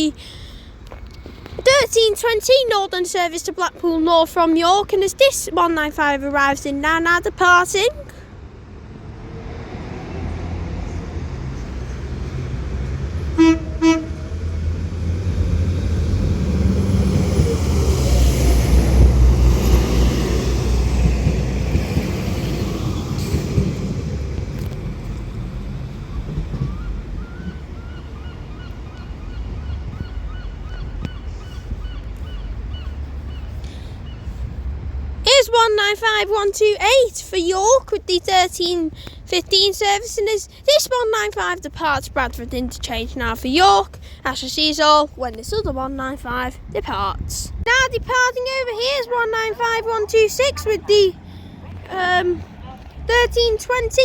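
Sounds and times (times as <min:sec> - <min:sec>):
train diesel engines rumbling: 0:00.0 - 0:54.0
train horn toots: 0:13.2 - 0:14.5.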